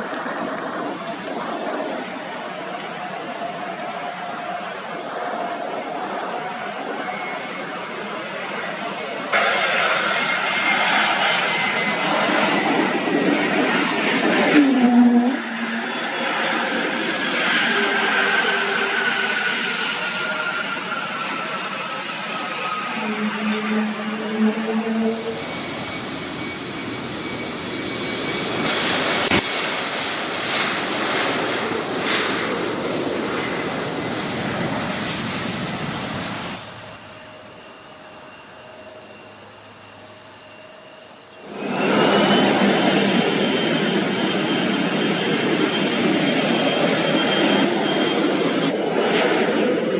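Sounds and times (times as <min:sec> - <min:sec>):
airliner engines roaring: 0:00.0 - 0:49.9.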